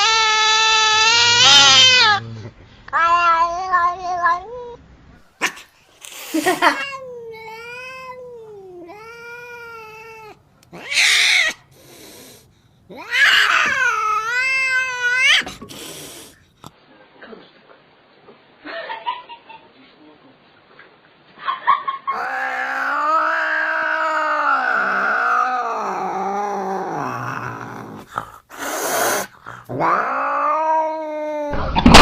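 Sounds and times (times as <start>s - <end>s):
cat yowling: 0.0s - 2.3s, 2.9s - 4.8s, 6.6s - 16.3s, 22.1s - 32.0s
cat hissing: 0.0s - 4.4s, 5.3s - 16.6s, 22.1s - 32.0s.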